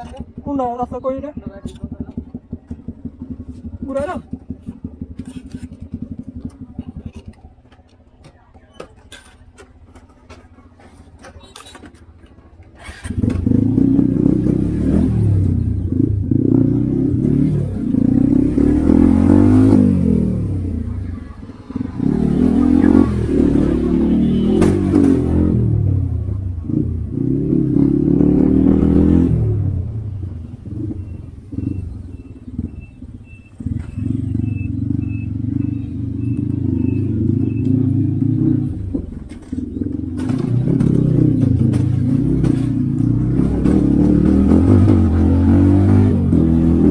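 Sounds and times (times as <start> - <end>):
motorcycle engine revving: 0.0 - 8.3, 12.6 - 46.9
short high beeps: 30.9 - 37.8.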